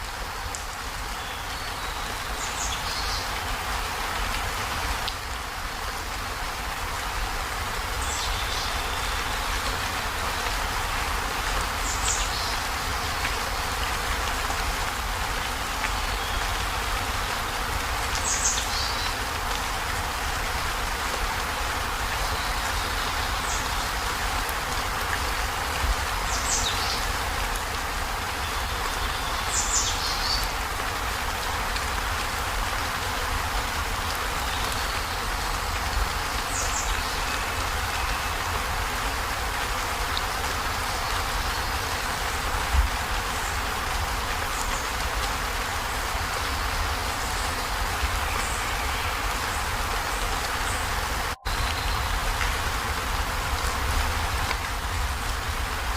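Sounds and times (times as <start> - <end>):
heavy rain on a metal roof: 0.0 - 55.9.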